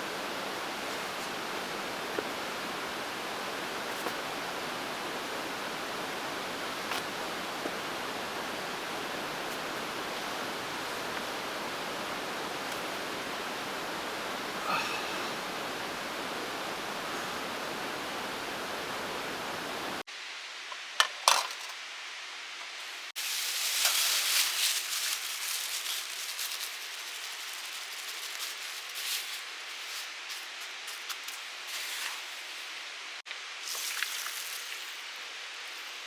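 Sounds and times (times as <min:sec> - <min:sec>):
rain pattering: 0:00.0 - 0:20.1
rain hissing: 0:00.0 - 0:20.7, 0:21.8 - 0:36.0.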